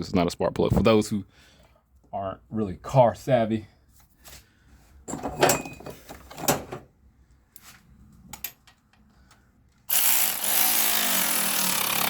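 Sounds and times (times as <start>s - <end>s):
metal tools clinking and knocking: 5.1s - 6.8s.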